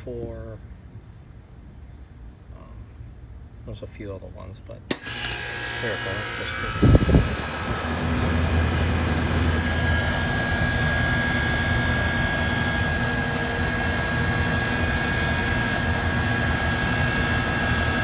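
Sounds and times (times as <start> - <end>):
thin steady whine: 0.0 - 18.0
compressor hum: 4.9 - 18.0
condenser fan rushing: 4.9 - 18.0.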